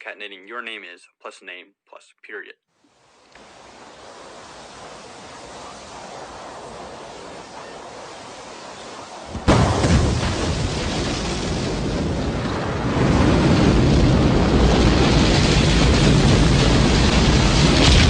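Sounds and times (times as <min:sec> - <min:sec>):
steady hiss: 0:02.8 - 0:09.8
rocket engine deep rumble: 0:03.4 - 0:18.0.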